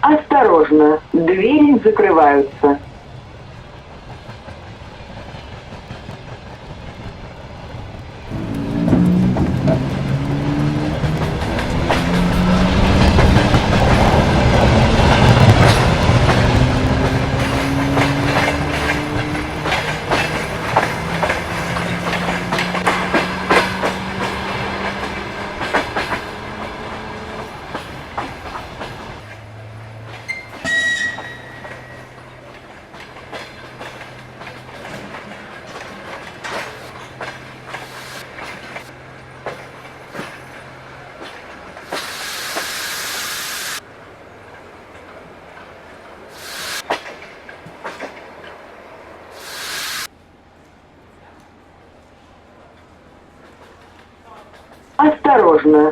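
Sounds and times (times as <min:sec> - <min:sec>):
train wheels clacking on rails: 0:03.6 - 0:43.8, 0:46.4 - 0:48.6.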